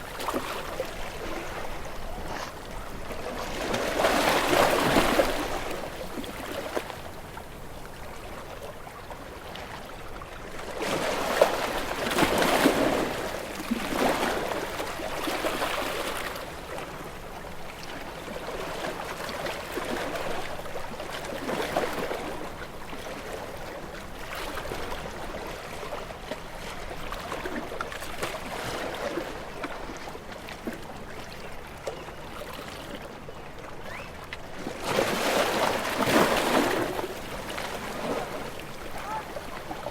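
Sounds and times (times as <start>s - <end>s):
moving water surging: 34.5s - 39.9s.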